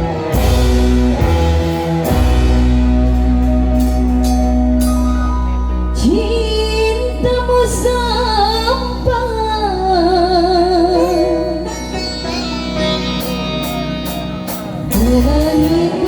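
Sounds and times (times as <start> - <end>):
pop song accompaniment with bass: 0.0 - 16.0
woman singing: 5.9 - 12.4, 14.8 - 16.0.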